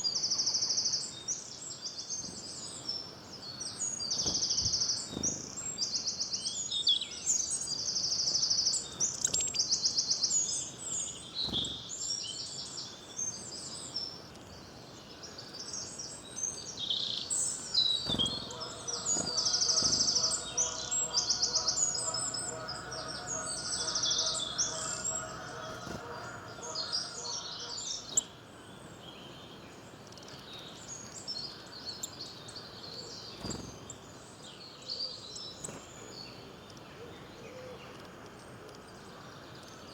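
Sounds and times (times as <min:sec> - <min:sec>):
songbirds singing and chirping: 0:00.0 - 0:39.9
rapid high bird trills: 0:17.5 - 0:28.2.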